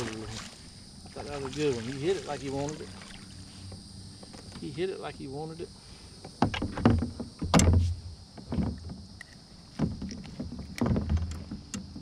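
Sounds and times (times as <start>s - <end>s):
knocks and thumps on boat hull: 6.2s - 12.0s.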